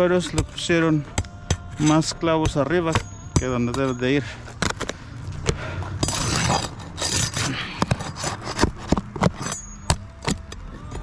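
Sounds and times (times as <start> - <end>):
shingles being pried loose: 6.0 - 11.0.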